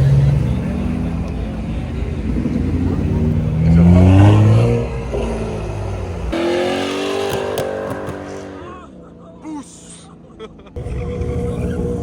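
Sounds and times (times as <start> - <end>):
car engine revving: 0.0 - 9.3, 10.8 - 12.0.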